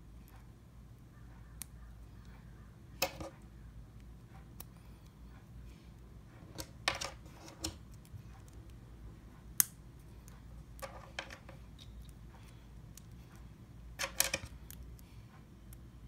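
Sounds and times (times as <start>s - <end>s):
plastic bricks clicking and clattering: 14.0s - 14.6s.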